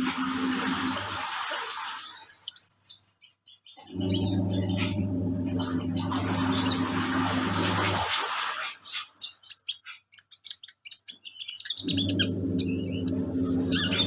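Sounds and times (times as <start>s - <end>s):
washing machine running: 0.0s - 2.1s, 3.8s - 8.8s, 11.8s - 14.0s
bird chirping: 1.6s - 14.0s.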